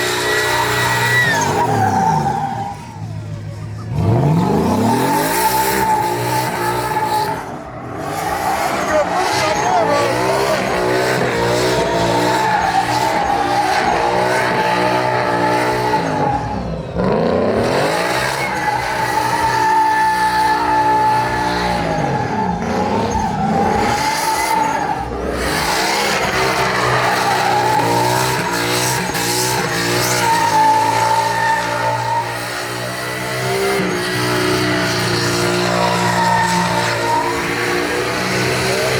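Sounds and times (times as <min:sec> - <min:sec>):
tyres screeching: 0:00.0 - 0:16.6, 0:17.8 - 0:38.9
truck engine revving hard: 0:00.0 - 0:38.9.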